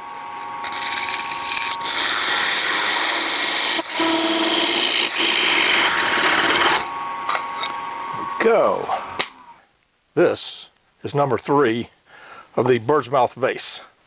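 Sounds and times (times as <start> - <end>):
tool scraping spinning wood: 0.6 - 6.9
lathe humming: 0.6 - 7.2.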